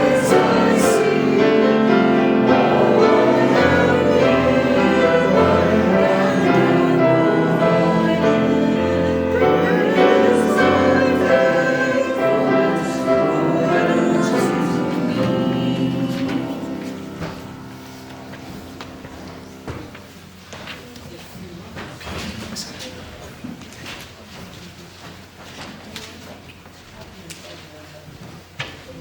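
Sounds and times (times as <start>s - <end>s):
choir singing: 0.0s - 20.0s.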